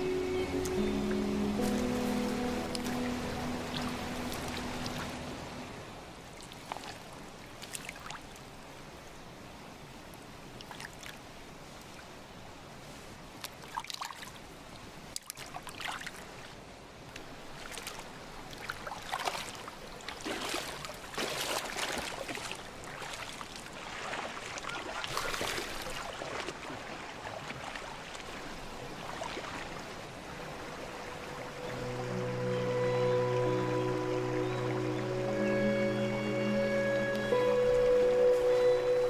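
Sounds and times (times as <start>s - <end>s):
water trickling: 0.0s - 8.4s
water splashing: 0.0s - 8.5s, 17.4s - 39.0s.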